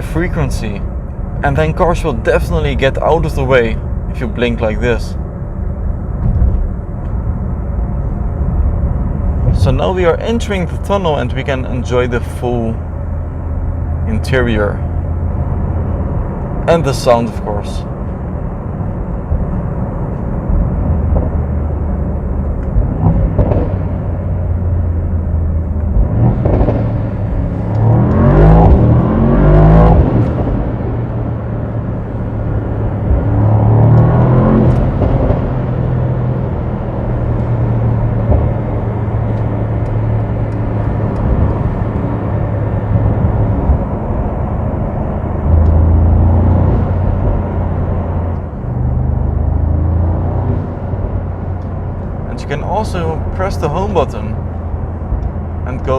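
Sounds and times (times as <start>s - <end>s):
car engine revving in a tunnel: 17.8s - 55.9s.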